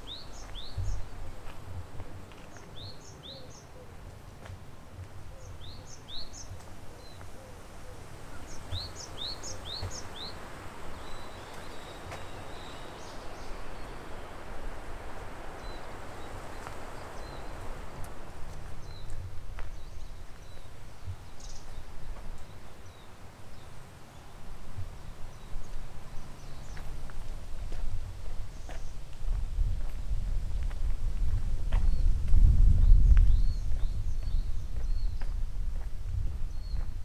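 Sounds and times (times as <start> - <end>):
outdoor hiss: 5.6 - 31.7.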